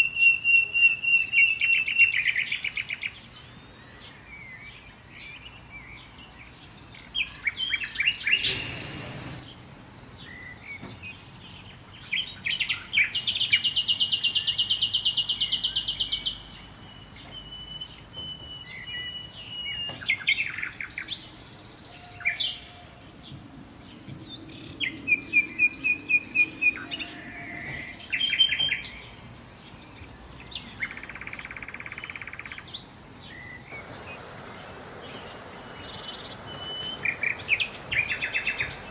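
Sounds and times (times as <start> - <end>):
faint background hiss: 0.0 - 38.9
songbirds chirping and trilling: 0.0 - 38.9
rapid buzzing bird trill: 8.1 - 9.6, 33.7 - 38.9.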